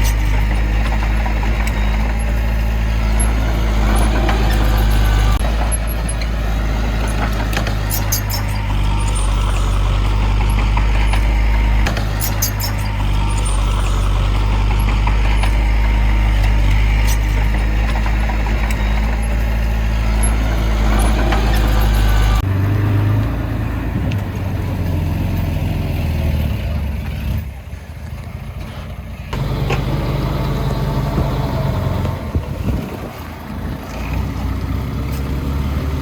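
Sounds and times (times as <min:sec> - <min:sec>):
heavy diesel engines running: 0:00.0 - 0:36.0.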